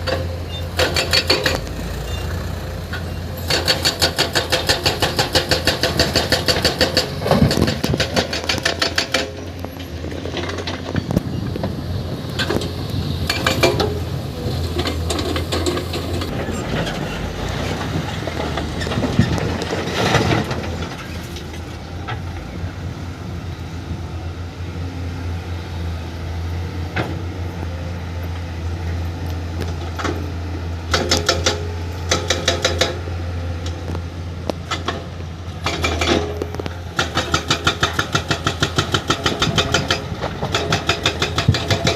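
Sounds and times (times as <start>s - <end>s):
metallic clanking and scraping: 0.0s - 11.3s, 12.3s - 22.2s
diesel excavator engine: 0.0s - 41.9s.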